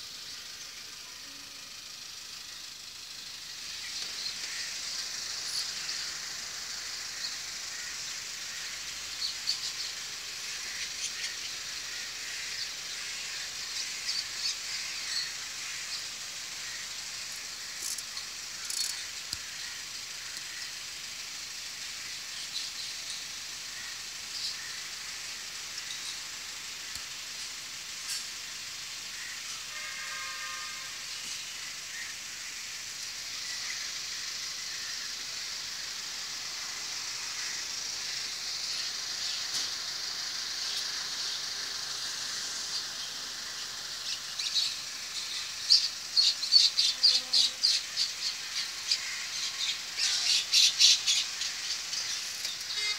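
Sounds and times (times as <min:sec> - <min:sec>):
steady high hiss: 0:00.0 - 0:52.9
birds chirping: 0:00.1 - 0:29.5.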